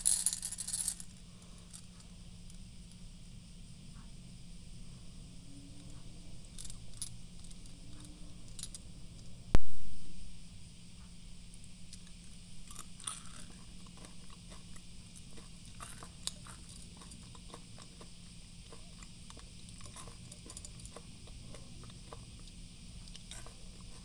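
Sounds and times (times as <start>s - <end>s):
chocolates being crunched and chewed: 11.9s - 24.0s.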